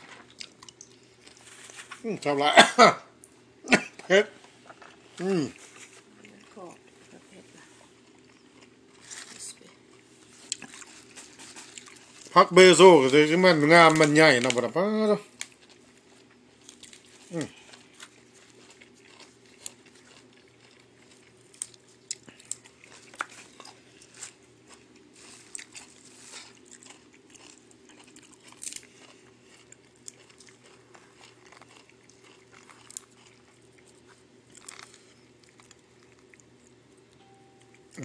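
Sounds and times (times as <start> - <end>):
person chewing crunchy food: 0.0 - 2.0, 3.2 - 12.7, 15.3 - 37.0
faint steady hum: 0.0 - 38.0.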